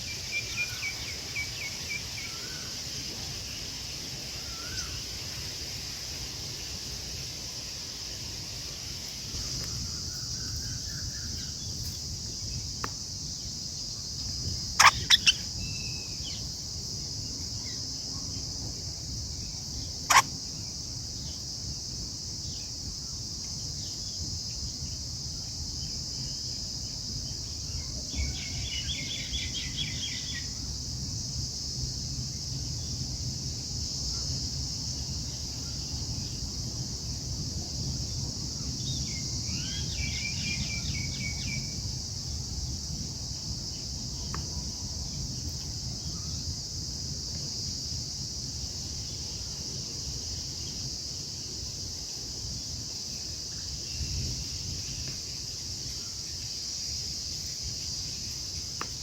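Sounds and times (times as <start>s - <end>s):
high-pitched insect drone: 0.0s - 18.3s, 19.3s - 23.2s
bird rapid repeated notes: 14.8s - 15.4s.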